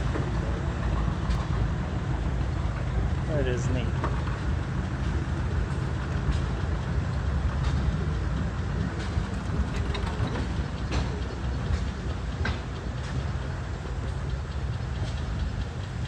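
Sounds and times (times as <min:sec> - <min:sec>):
steam tractors rumbling: 0:00.0 - 0:16.0
light mechanical clicks and knocks: 0:03.8 - 0:16.0.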